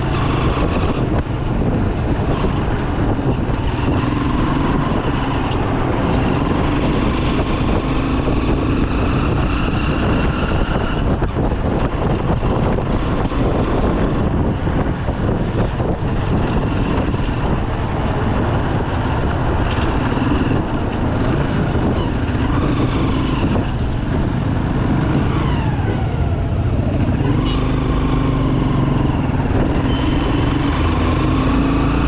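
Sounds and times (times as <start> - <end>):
surrounding traffic engines: 0.0 - 32.0
wind rushing over microphone: 0.0 - 32.0
motorcycle engine running: 11.2 - 31.4.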